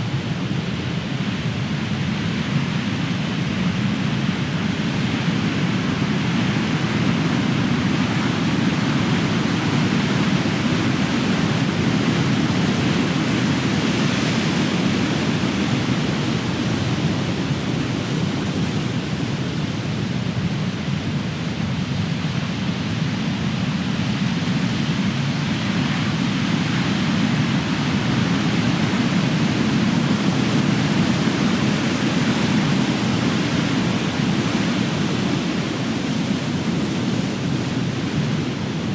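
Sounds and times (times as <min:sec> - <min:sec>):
ocean waves crashing on shore: 0:25.8 - 0:38.9.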